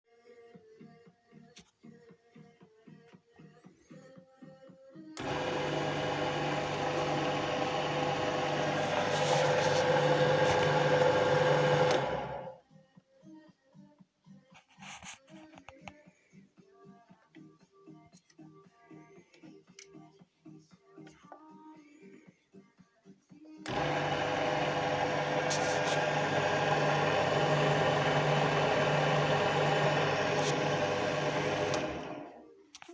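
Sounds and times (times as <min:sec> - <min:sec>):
drill press motor running: 0:05.2 - 0:12.6, 0:23.7 - 0:32.4.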